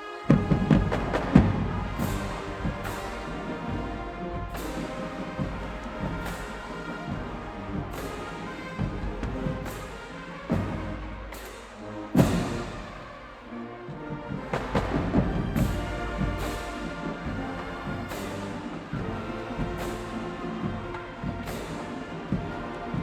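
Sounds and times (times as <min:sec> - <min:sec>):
marching band brass chords: 0:00.0 - 0:23.0
drum and cymbal hits: 0:00.2 - 0:23.0.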